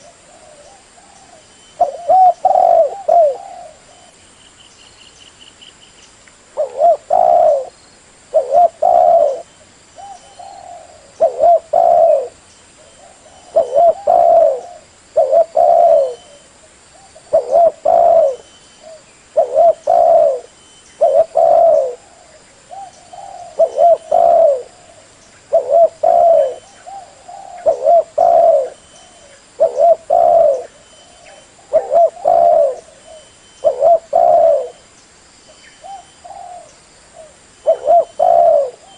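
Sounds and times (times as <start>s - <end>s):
dove cooing: 0.0s - 4.2s, 6.6s - 34.8s, 35.8s - 38.9s.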